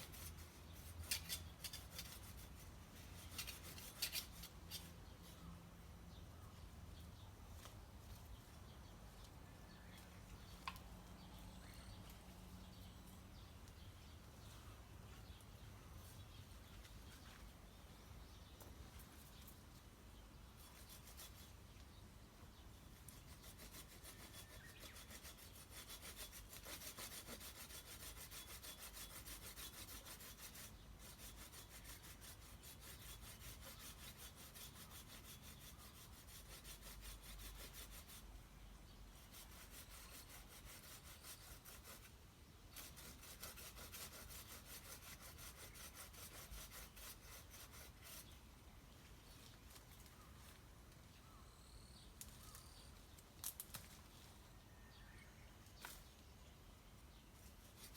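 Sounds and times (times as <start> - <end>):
hand saw rasping through wood: 23.1 - 38.2, 39.2 - 42.1, 42.8 - 48.4.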